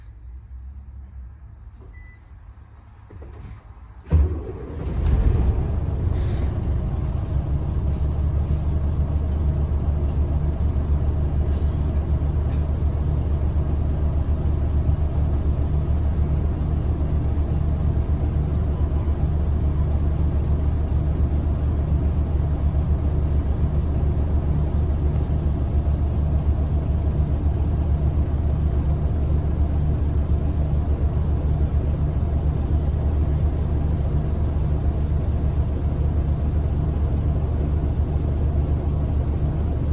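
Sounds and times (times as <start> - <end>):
diesel engine running: 4.1 - 39.9.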